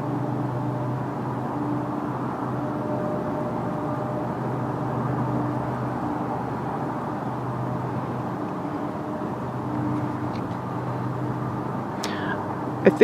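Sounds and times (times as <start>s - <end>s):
low mechanical rumble and hum: 0.0s - 13.0s.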